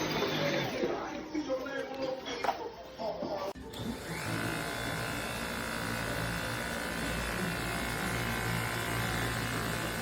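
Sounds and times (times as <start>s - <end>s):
vacuum cleaner motor whining: 3.6s - 10.0s.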